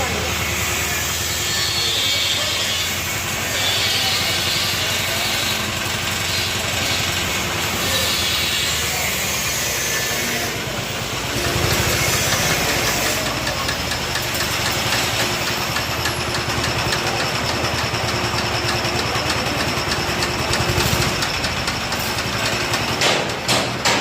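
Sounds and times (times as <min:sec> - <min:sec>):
engine running with low pulsing: 0:10.4 - 0:23.5.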